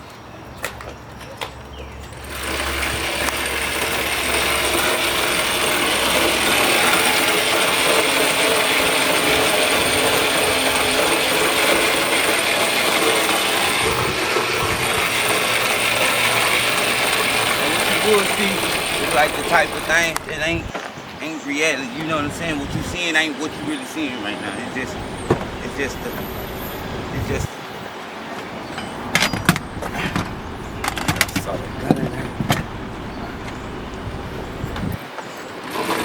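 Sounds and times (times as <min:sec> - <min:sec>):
loud mechanical rattling: 0:02.1 - 0:20.7, 0:24.8 - 0:27.5, 0:35.6 - 0:36.0.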